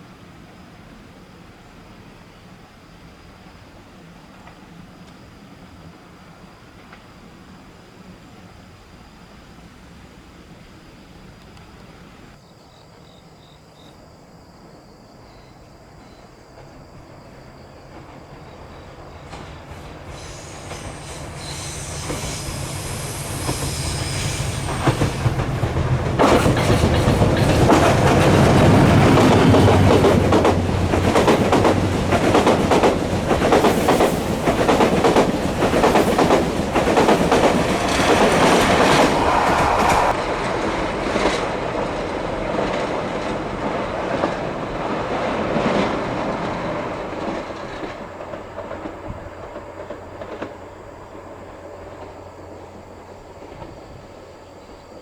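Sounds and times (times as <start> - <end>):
train passing: 0.0 - 13.0, 14.3 - 55.0
wheels clattering over rail joints: 17.8 - 50.8.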